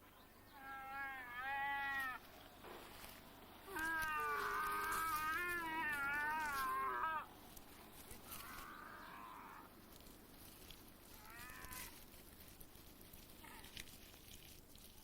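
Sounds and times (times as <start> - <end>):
goat bleating: 3.7 - 7.3.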